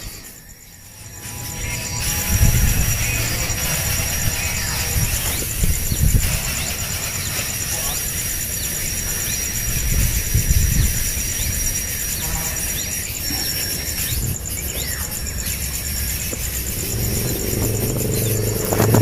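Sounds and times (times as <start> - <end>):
insect trill: 0.0 - 19.0
wind on microphone: 1.5 - 7.1, 9.5 - 12.6, 14.0 - 19.0.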